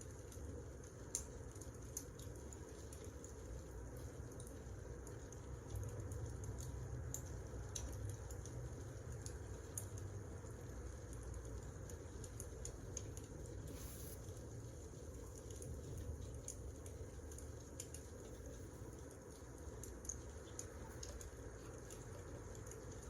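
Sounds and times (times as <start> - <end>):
fire crackling and popping: 0.2 - 23.0.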